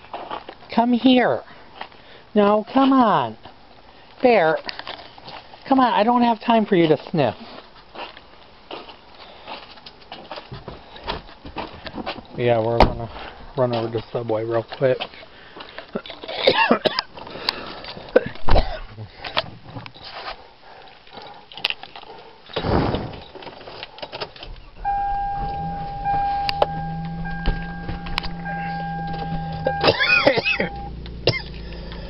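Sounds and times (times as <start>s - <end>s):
low motor hum: 24.7s - 32.0s
steady electronic tone: 24.8s - 32.0s.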